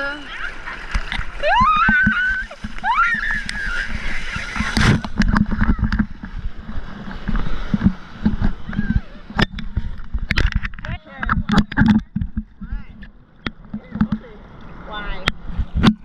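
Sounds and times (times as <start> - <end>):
wind on microphone: 0.0 - 13.1, 15.0 - 16.0
water splashing: 0.0 - 16.0.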